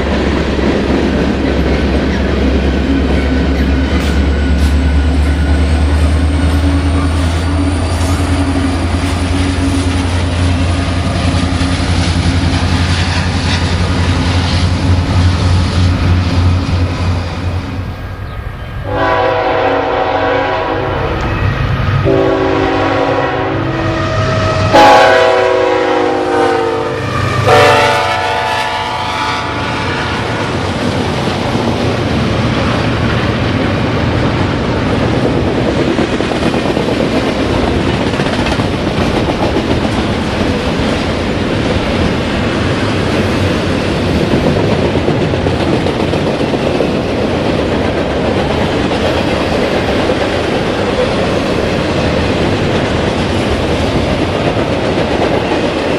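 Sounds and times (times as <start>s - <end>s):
train cars rumbling on rails: 0.0s - 55.9s
locomotive air horn blasts: 18.8s - 21.3s, 22.0s - 30.4s.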